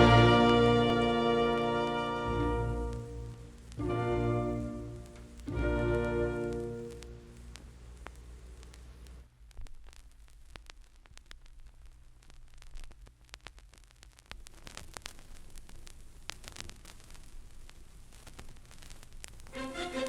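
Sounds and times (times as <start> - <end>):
turntable low rumble: 0.0 - 14.1
record hiss: 0.0 - 20.0
vinyl crackles and pops: 0.0 - 20.0.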